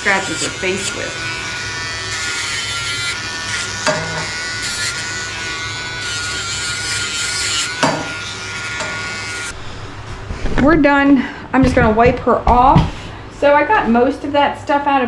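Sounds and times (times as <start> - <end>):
rotary nail grinder whining: 0.0 - 9.6.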